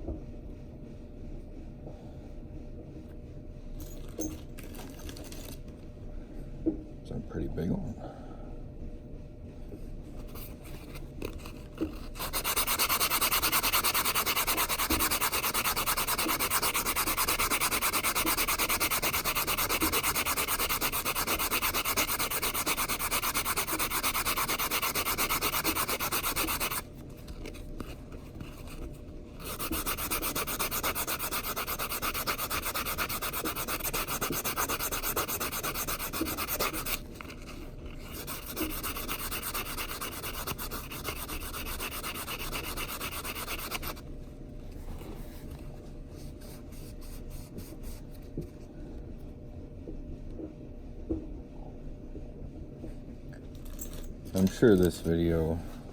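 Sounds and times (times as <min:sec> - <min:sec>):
metal ring rasping on nail file: 0:11.3 - 0:26.9, 0:29.4 - 0:44.0.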